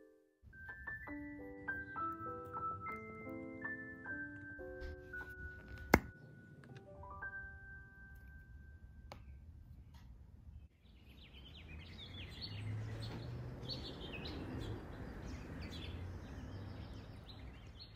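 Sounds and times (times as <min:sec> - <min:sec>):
birds chirping: 0:09.1 - 0:17.9.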